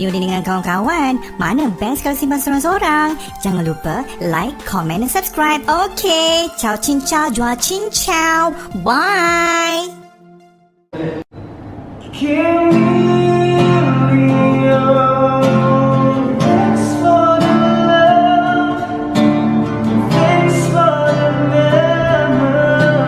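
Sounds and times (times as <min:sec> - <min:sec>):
plucked guitar: 0:00.0 - 0:09.7, 0:12.1 - 0:23.0
person singing: 0:02.7 - 0:10.0, 0:12.1 - 0:19.3, 0:20.0 - 0:23.0.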